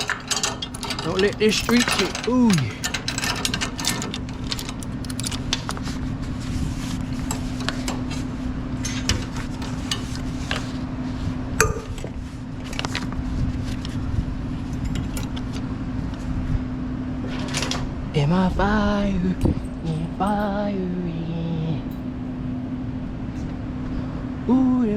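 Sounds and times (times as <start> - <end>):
metallic clinks and rattles: 0.0 - 5.7
steady low hum: 0.0 - 24.9.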